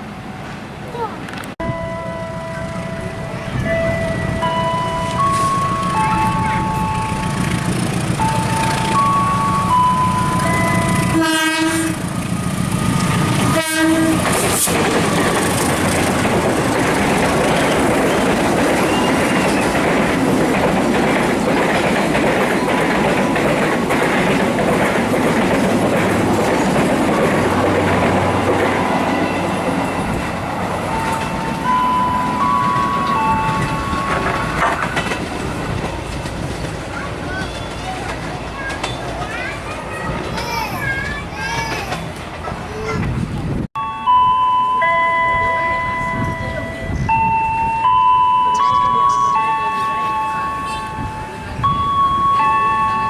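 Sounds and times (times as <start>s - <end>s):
train rumbling past: 0.0s - 53.0s
train horn blasts: 10.8s - 12.1s, 13.4s - 14.4s
wheels clicking over rail joints: 12.0s - 43.5s.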